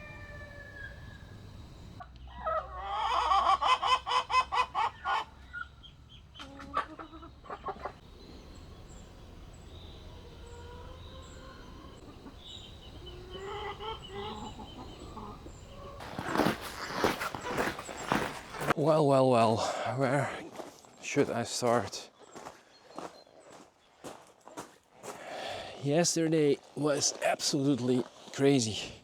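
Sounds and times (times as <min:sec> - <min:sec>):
birds calling: 0:00.0 - 0:18.8, 0:19.4 - 0:24.0
low steady background noise: 0:00.0 - 0:22.2.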